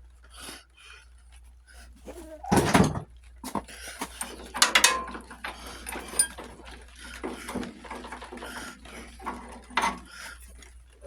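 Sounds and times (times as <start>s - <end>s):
hand tools clicking on metal: 3.9s - 10.6s
metallic rattle: 4.1s - 10.6s.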